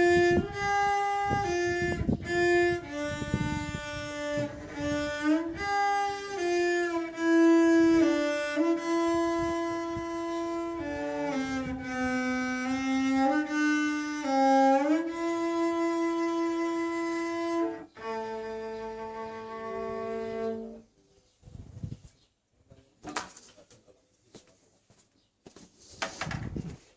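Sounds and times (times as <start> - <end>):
bowed string instrument melody: 0.0 - 21.0.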